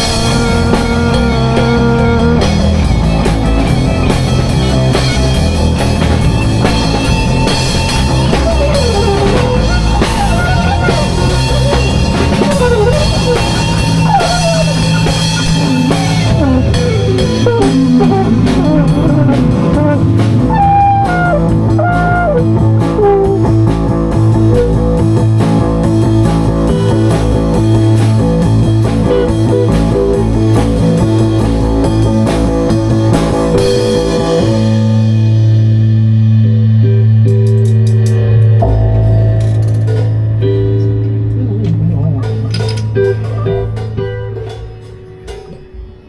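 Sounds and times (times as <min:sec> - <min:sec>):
lead instrument gliding melody: 0:00.0 - 0:23.7, 0:38.6 - 0:46.0
bass groove: 0:00.0 - 0:46.0
drum kit: 0:00.0 - 0:46.0.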